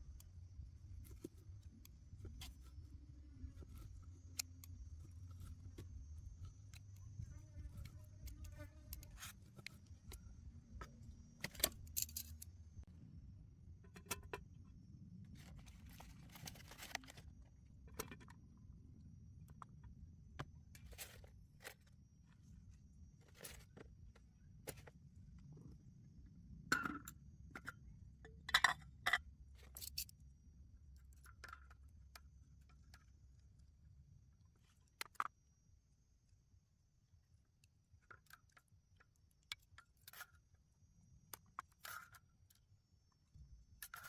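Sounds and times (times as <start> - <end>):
low steady rumble: 0.0 - 34.5
small metal items clinking: 11.4 - 12.5.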